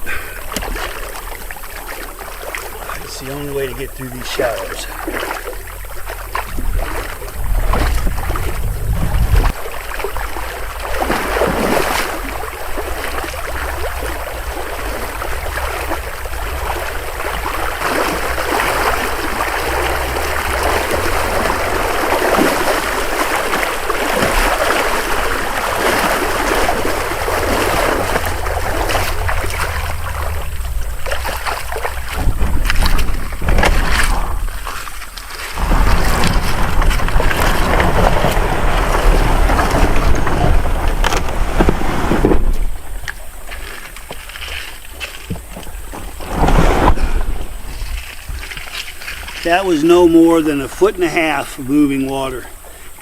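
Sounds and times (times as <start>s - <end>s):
canoe dragged through water: 0.0s - 53.0s
river water rushing and splashing: 0.0s - 53.0s
wind buffeting microphone: 2.2s - 43.5s.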